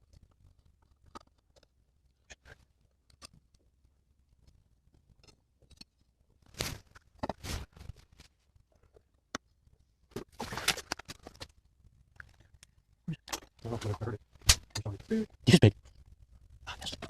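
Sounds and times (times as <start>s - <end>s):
objects knocking and scraping: 4.9s - 9.5s.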